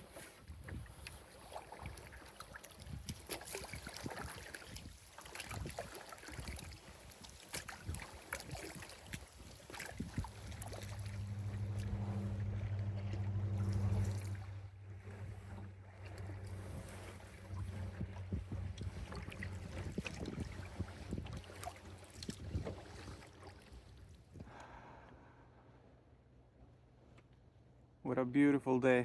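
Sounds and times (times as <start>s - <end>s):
paddle splashes: 0.0s - 25.0s
low hum with overtones: 9.9s - 21.0s.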